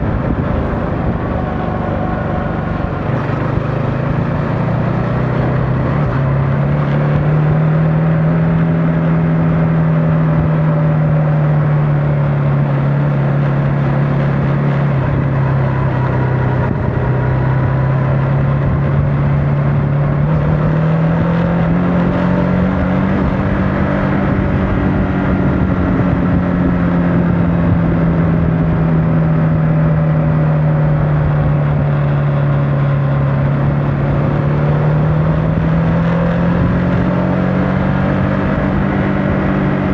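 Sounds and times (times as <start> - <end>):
motorcycle engine running: 0.0 - 10.5, 11.8 - 20.6.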